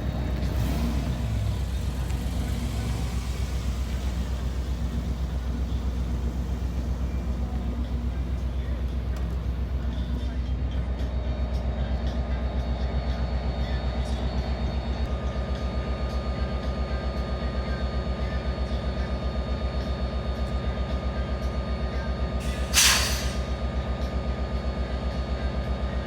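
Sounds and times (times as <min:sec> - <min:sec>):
car engine idling: 0:00.0 - 0:10.9
short loud hiss: 0:22.4 - 0:23.5.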